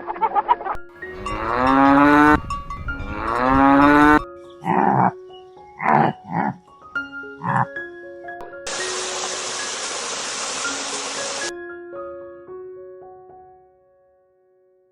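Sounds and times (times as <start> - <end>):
soft background music: 0.0 - 14.6
cow mooing: 1.1 - 2.4, 3.0 - 5.2, 5.8 - 6.6, 7.4 - 7.7.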